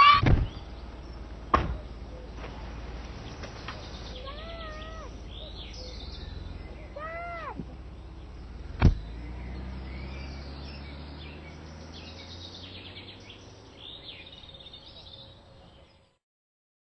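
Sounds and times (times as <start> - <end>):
small birds chirping: 0.0 - 16.2
loud sharp thump: 0.1 - 0.6, 1.5 - 1.9, 8.8 - 9.0.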